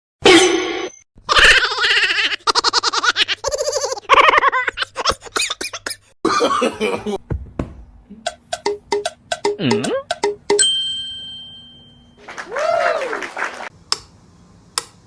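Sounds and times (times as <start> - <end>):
person laughing: 1.3 - 7.2.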